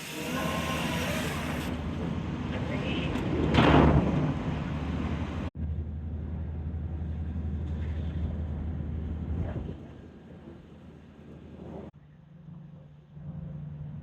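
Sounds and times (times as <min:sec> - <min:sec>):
vehicle engine rumble: 0:00.2 - 0:14.0.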